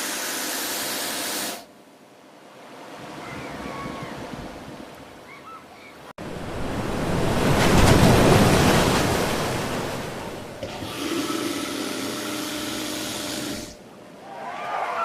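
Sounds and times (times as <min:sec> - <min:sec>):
floodwater rushing: 0:06.2 - 0:13.8.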